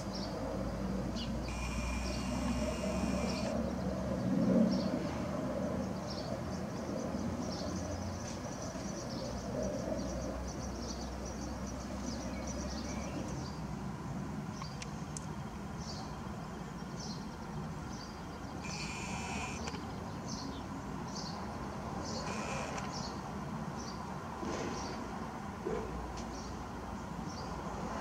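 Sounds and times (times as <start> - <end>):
small birds chirping: 0.0 - 4.9, 14.5 - 24.2
steady high whine: 1.1 - 3.8, 18.4 - 20.1, 22.0 - 23.3.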